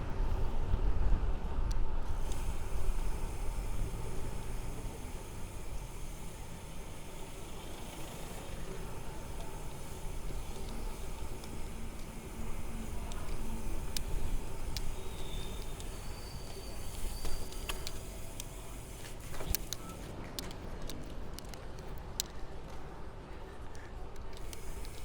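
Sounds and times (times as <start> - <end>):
wind rushing over microphone: 0.0 - 4.4
bike road noise: 0.0 - 25.0
sharp clicks and ticks: 9.4 - 22.5, 23.7 - 25.0.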